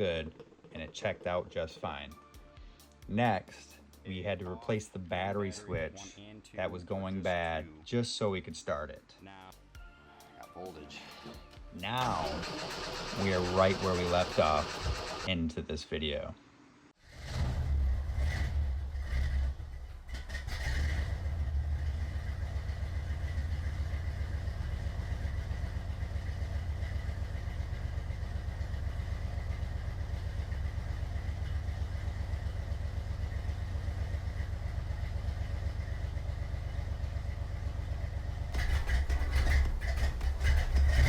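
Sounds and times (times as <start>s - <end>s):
car engine idling: 11.8s - 15.3s, 18.0s - 41.0s.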